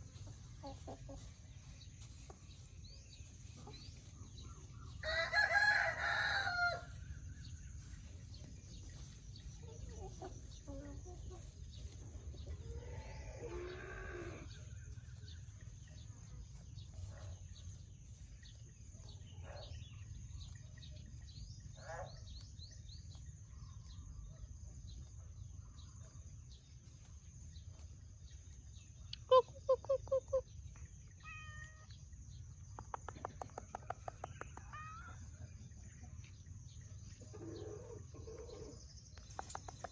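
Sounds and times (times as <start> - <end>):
chickens clucking: 0.0 - 31.2, 31.9 - 39.9
rooster crowing: 5.0 - 7.0.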